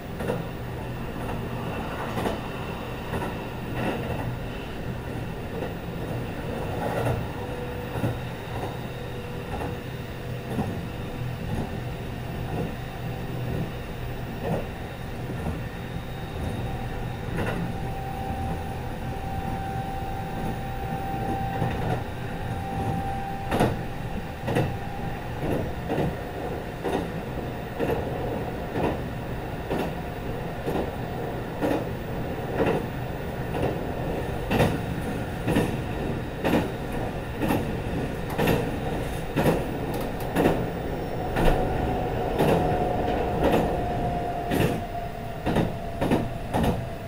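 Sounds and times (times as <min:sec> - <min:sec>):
wheels rumbling on rail: 0:00.0 - 0:47.0
clicks at rail joints: 0:23.5 - 0:23.8, 0:31.6 - 0:31.9, 0:34.5 - 0:35.8, 0:36.4 - 0:40.7, 0:42.4 - 0:43.8, 0:44.5 - 0:46.9.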